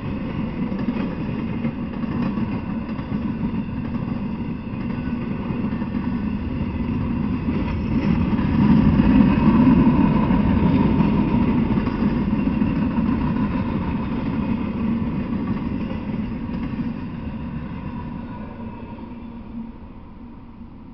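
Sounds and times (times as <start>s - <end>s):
freight train cars rolling: 0.0s - 20.9s.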